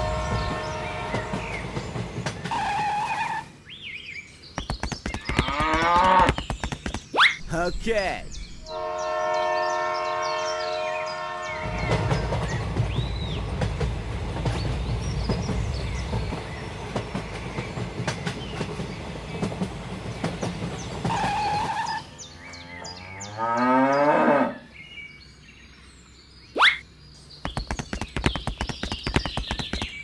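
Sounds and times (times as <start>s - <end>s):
train rumbling and clattering: 0.0s - 3.6s, 8.3s - 22.4s.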